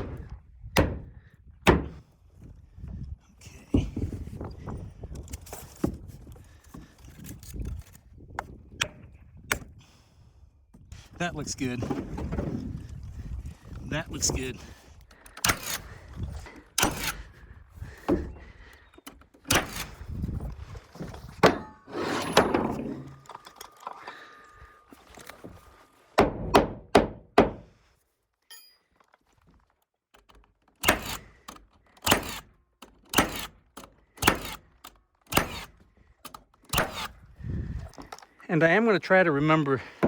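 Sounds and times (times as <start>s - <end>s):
heavy thunks on wooden panels: 0.0s - 2.1s, 17.8s - 18.7s, 21.0s - 23.2s, 26.2s - 27.7s.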